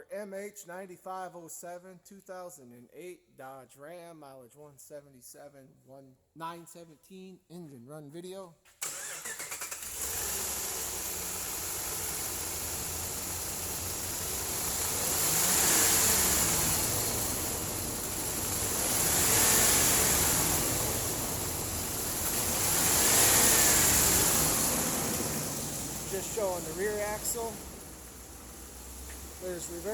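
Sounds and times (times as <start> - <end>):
pickup engine idling and revving: 8.9 - 29.9.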